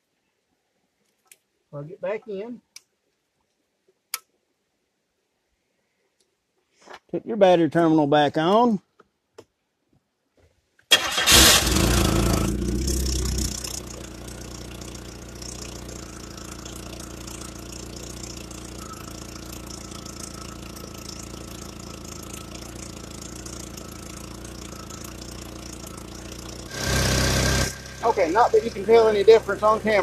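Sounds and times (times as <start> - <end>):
car engine idling: 10.9 - 30.0.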